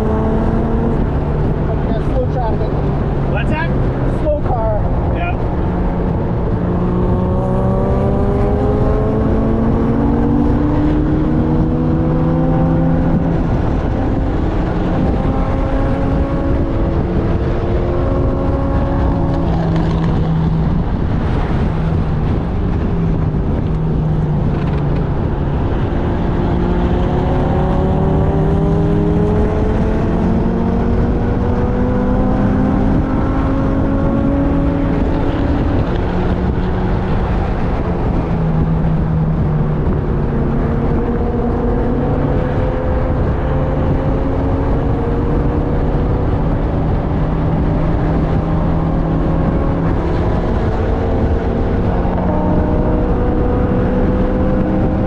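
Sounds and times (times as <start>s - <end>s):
race car engine accelerating: 0.0s - 55.0s
wind rushing: 0.0s - 55.0s.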